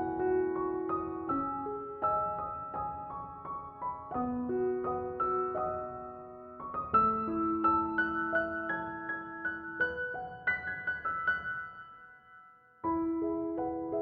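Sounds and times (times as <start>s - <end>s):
soft slow piano music: 0.0s - 14.0s.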